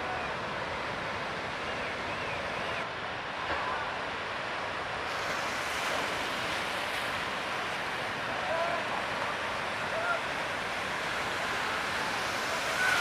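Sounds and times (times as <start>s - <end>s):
ocean surf breaking: 3.1s - 13.0s.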